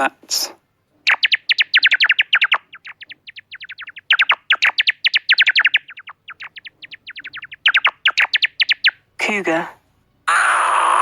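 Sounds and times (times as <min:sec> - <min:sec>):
bats squeaking: 0:01.0 - 0:09.1.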